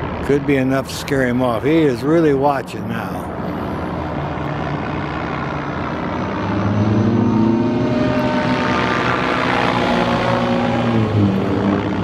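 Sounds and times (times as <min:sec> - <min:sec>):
model aircraft motor buzzing: 0:03.3 - 0:12.0.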